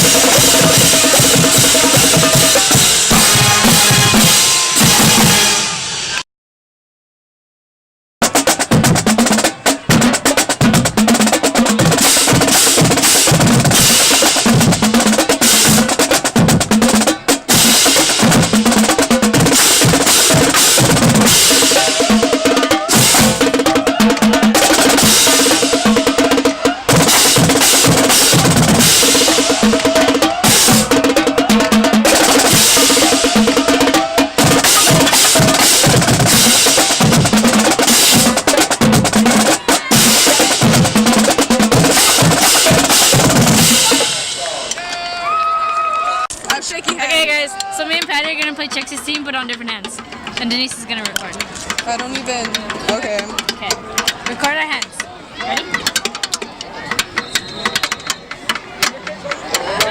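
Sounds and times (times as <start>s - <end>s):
bass and tenor drums: 0.0s - 6.2s, 8.2s - 44.8s
cymbals crashing: 0.0s - 6.2s, 17.0s - 44.7s
snare drum rolls: 0.0s - 6.2s, 8.2s - 45.0s, 55.4s - 59.9s.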